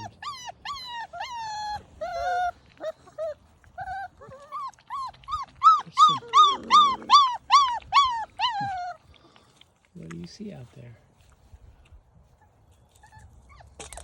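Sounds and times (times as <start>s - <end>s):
puppy yelping and whining: 0.0s - 9.1s, 12.4s - 14.0s.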